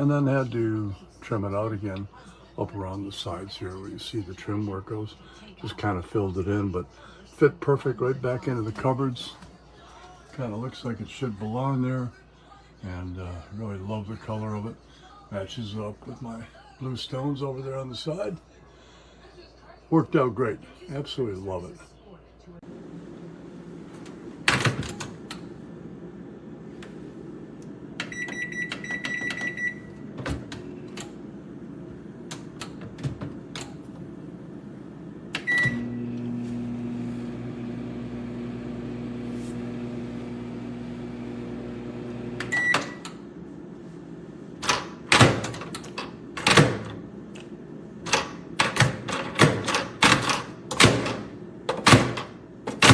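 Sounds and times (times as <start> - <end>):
microwave oven humming: 22.6 - 52.9
microwave beeps: 28.0 - 30.2, 35.4 - 37.0, 40.4 - 43.2.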